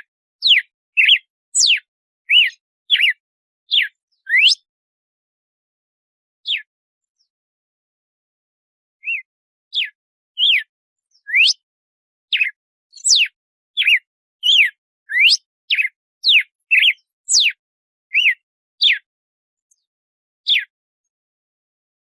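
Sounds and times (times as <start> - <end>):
bird whistling song: 0.0 - 4.7, 6.4 - 7.3, 9.0 - 11.7, 12.3 - 19.1, 20.5 - 20.7.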